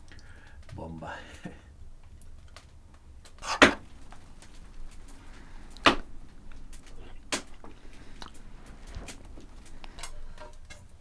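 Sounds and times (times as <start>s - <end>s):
sharp knocks: 3.4s - 8.1s.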